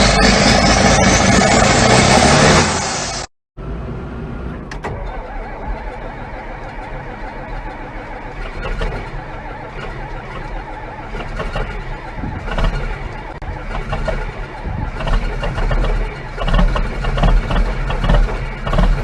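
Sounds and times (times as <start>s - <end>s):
tractor engine rumbling: 0.0s - 19.0s
faint engine ticking: 4.7s - 19.0s.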